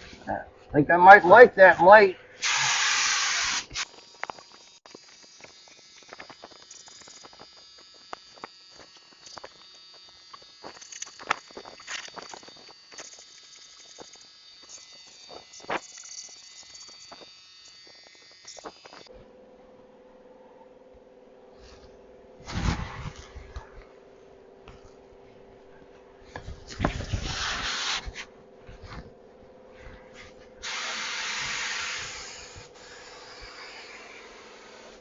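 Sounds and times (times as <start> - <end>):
spray gun hissing: 2.4 - 3.9, 26.9 - 28.2, 30.6 - 35.0
low steady hum: 3.9 - 27.4, 28.1 - 30.7.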